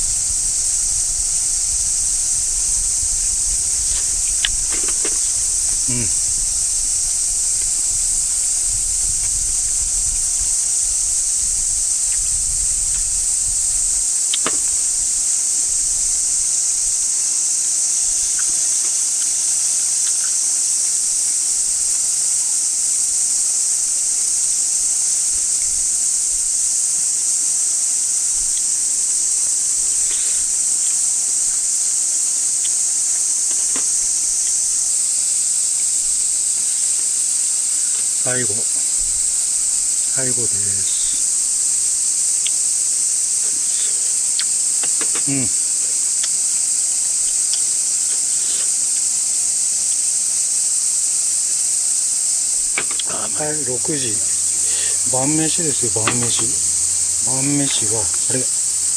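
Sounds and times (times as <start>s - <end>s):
cicadas droning: 0.0s - 58.9s
light knock: 56.0s - 56.5s.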